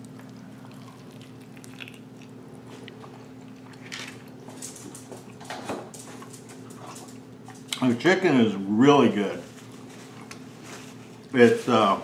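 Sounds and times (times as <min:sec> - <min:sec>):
person chewing: 0:00.0 - 0:04.5
steady low hum: 0:00.0 - 0:12.0.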